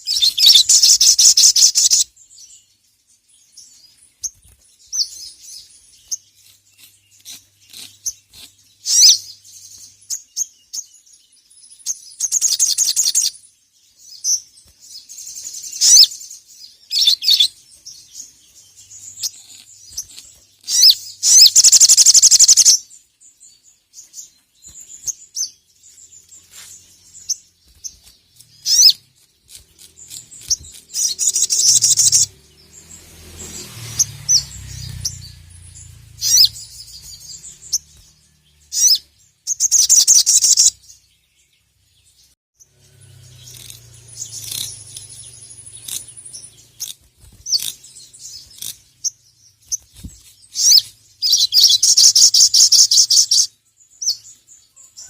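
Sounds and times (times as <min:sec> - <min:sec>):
bird chattering trills: 0:00.0 - 0:02.1, 0:15.3 - 0:16.2, 0:18.2 - 0:22.8, 0:28.4 - 0:32.4, 0:33.5 - 0:40.8, 0:43.0 - 0:49.3.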